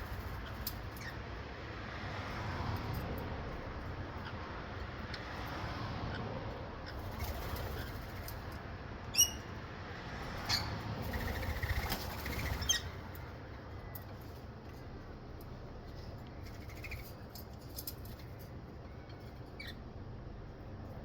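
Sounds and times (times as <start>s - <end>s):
wild birds calling: 10.4s - 14.0s, 16.4s - 17.2s.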